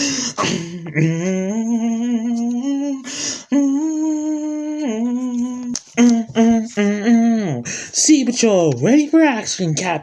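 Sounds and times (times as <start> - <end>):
person humming: 0.0 - 7.7.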